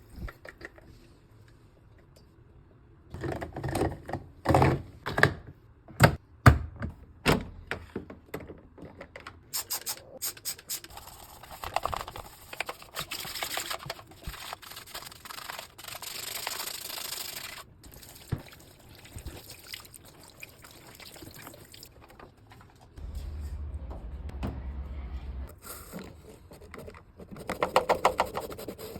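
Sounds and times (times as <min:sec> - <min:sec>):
low hum: 0:23.0 - 0:25.6.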